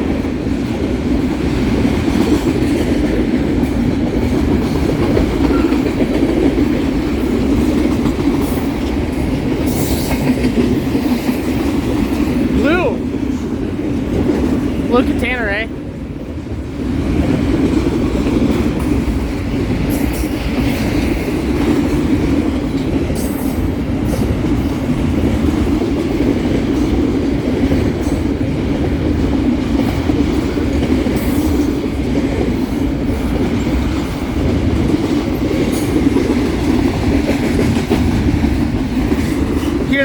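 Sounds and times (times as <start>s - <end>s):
train wheels clacking: 0.0s - 15.3s, 16.5s - 40.0s
freight train wheels rumbling: 0.0s - 40.0s.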